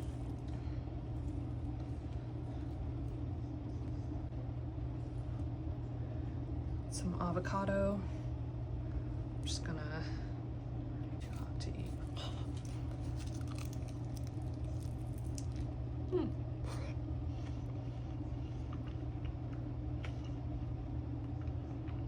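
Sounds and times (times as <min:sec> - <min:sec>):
low hum: 0:00.0 - 0:22.0
person chewing food: 0:12.0 - 0:15.8, 0:17.4 - 0:20.4.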